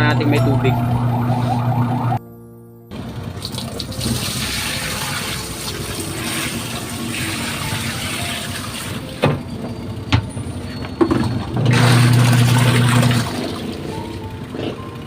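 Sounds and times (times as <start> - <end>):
washing machine motor humming: 0.0 - 2.2, 2.9 - 15.0
water running: 3.4 - 9.0, 11.7 - 13.9.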